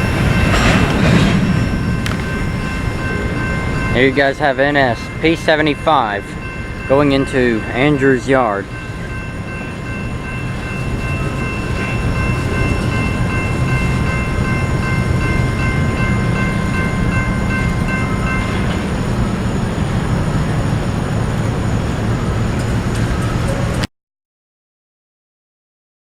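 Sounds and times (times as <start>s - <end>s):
high-pitched squeal: 0.0s - 7.9s
freight train rumbling: 0.0s - 23.9s.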